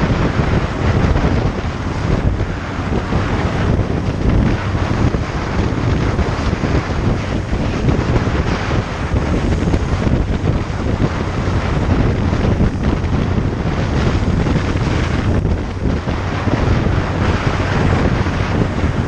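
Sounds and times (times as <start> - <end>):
motorcycle engine humming: 0.0 - 19.0
wind rushing over microphone: 0.0 - 19.0.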